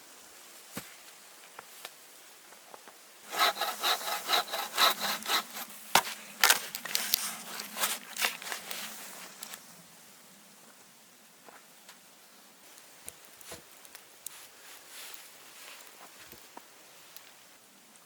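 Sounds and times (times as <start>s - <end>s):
hand saw cutting wood: 3.3s - 8.9s.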